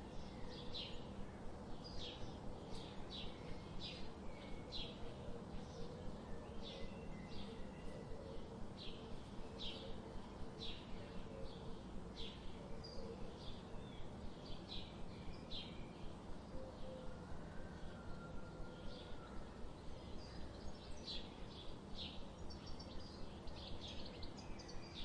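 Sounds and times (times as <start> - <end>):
steady low hum: 0.0 - 25.0
small birds chirping: 19.8 - 25.0.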